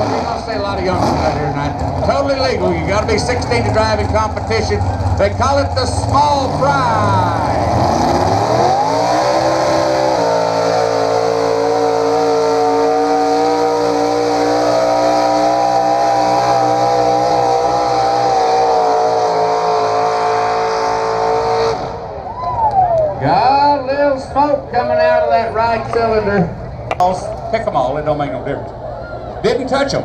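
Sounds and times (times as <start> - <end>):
tractor engine at full throttle: 0.0 - 22.2.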